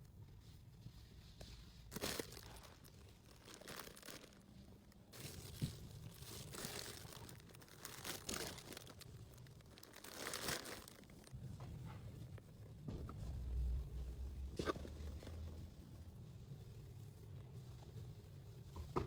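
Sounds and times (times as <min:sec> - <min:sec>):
plastic packaging crinkling: 0:01.9 - 0:11.3.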